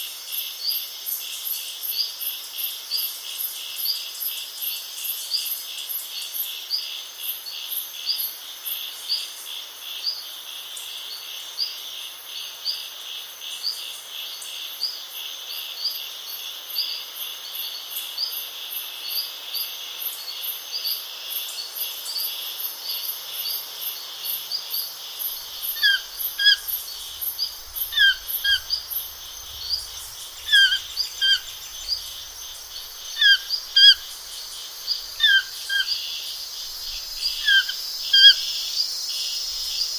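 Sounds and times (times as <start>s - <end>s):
insects trilling: 0.0s - 39.9s
bird chirping: 25.3s - 39.9s.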